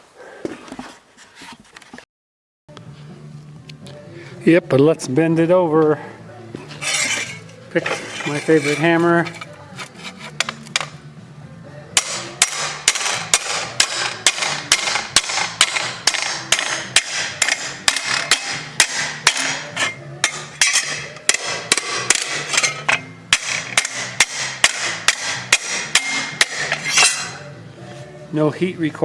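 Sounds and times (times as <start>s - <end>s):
hammer striking steel bar: 6.8s - 8.0s, 10.4s - 11.0s, 12.0s - 27.5s.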